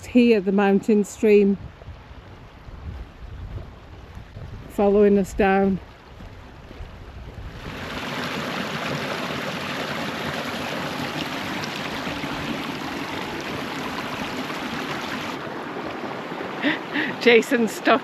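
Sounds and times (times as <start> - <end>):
stream running over rocks: 7.5 - 18.0.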